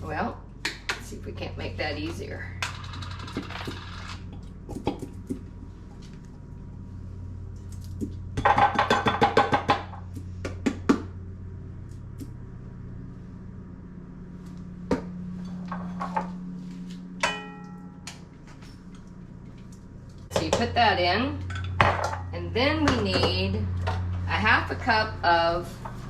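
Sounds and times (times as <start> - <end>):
steady low hum: 0.0 - 26.0
metal or glass clink: 17.2 - 18.1.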